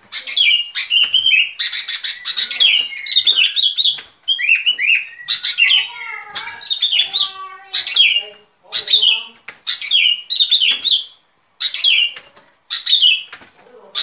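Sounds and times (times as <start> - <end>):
bird singing chirpy phrases: 0.0 - 14.0.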